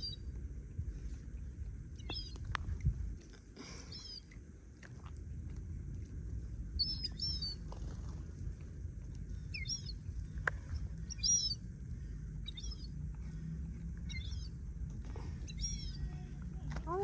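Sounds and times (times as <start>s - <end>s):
sparrows chirping: 2.0s - 2.4s, 6.8s - 7.6s, 9.4s - 10.1s, 11.0s - 11.7s, 12.4s - 13.4s, 14.1s - 14.6s, 15.3s - 17.0s.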